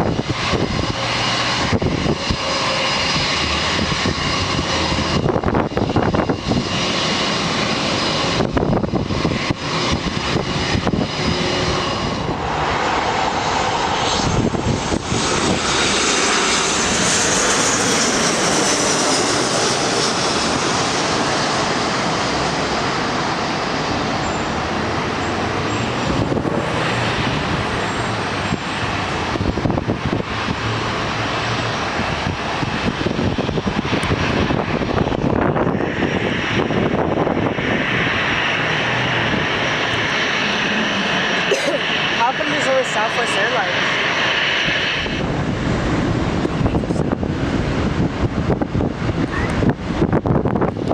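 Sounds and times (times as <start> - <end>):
jet airliner engines passing: 0.0 - 50.9.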